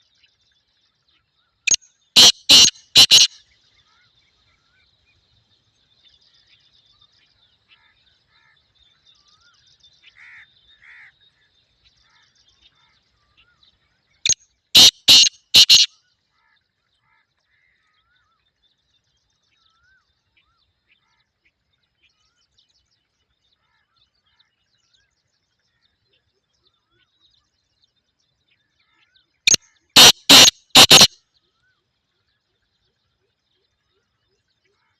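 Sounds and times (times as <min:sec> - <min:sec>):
small birds chirping: 0:00.0 - 0:17.0, 0:17.9 - 0:34.9
bird harsh grating call: 0:02.2 - 0:03.4, 0:14.8 - 0:15.9, 0:29.5 - 0:31.2.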